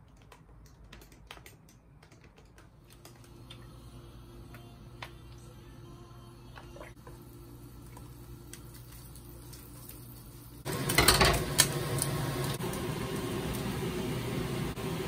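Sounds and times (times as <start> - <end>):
meat sizzling in a frying pan: 7.7 - 15.0.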